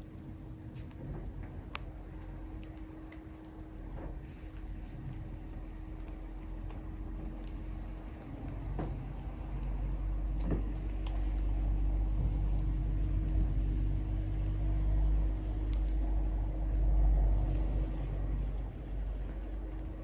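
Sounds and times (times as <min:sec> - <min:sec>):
low rumble with faint hum: 0:00.0 - 0:20.0.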